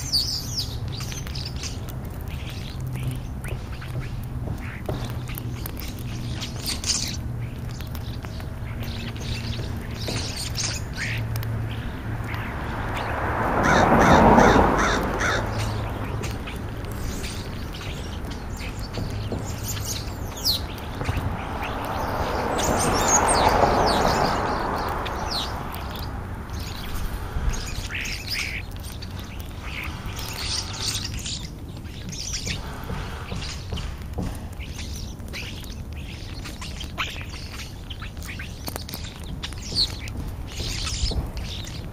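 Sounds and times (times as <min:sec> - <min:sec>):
starlings chirping and whistling: 0:00.0 - 0:41.9
crows cawing: 0:11.0 - 0:16.7, 0:26.6 - 0:31.5, 0:32.4 - 0:34.4.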